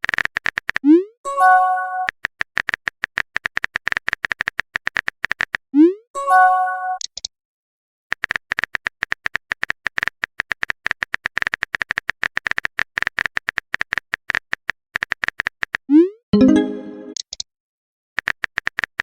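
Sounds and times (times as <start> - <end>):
keyboard typing: 0.0 - 0.9, 1.7 - 5.6, 8.1 - 15.8, 18.2 - 19.0
notification chime: 16.4 - 17.2.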